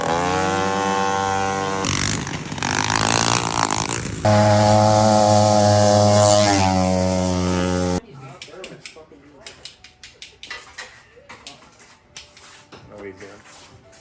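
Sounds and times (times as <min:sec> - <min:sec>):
small mower engines running: 0:00.0 - 0:08.0.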